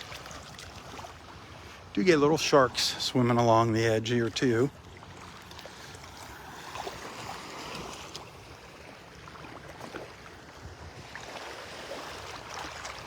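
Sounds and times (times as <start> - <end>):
small waves lapping in shallow water: 0.0 - 13.0.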